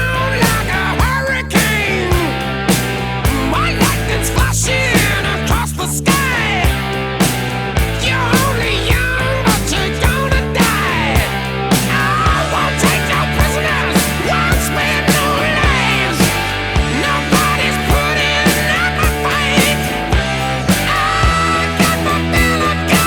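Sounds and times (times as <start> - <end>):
distorted guitar: 0.0 - 23.0
drum beat: 6.2 - 23.0.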